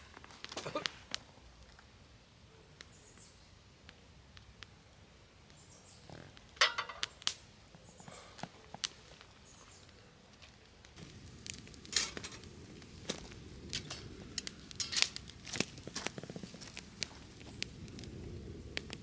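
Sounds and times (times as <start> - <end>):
rustling: 8.6 - 19.0.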